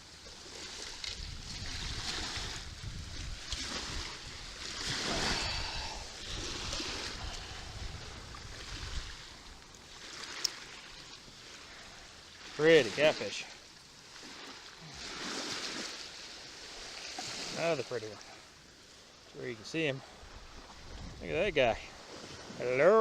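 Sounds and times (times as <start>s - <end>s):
small waves washing on beach: 0.0s - 23.0s
wind buffeting microphone: 1.0s - 9.7s, 20.1s - 22.7s.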